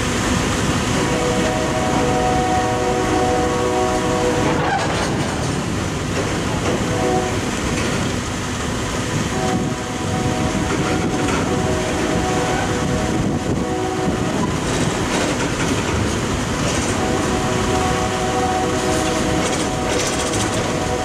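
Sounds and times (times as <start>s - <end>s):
train wheels rumbling and clattering: 0.0s - 21.0s.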